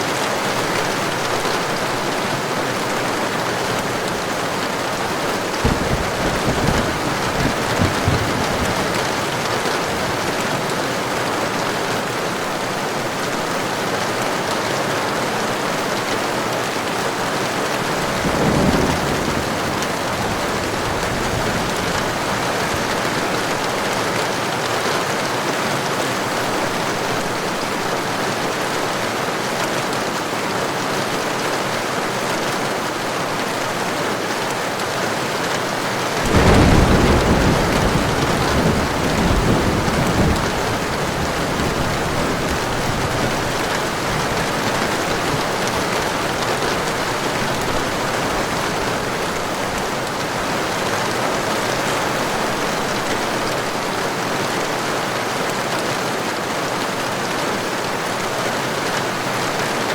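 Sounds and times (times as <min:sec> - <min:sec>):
heavy rain falling: 0:00.0 - 0:59.9
low thunder rumbles: 0:03.8 - 0:10.5, 0:17.7 - 0:23.9, 0:36.2 - 0:49.5.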